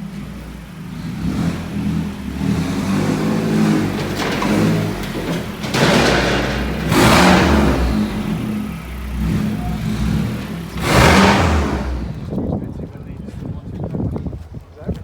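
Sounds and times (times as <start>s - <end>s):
car engine revving: 0.0s - 12.4s
loud rushing bursts: 2.8s - 12.3s.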